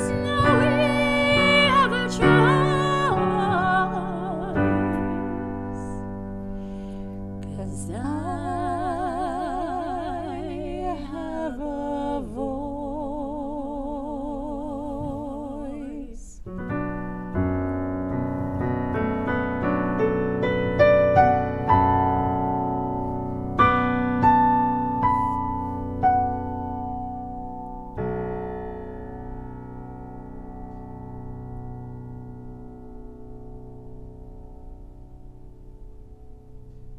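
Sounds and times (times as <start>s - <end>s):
person singing with vibrato: 0.0s - 6.1s, 7.4s - 16.5s
piano: 0.0s - 36.9s.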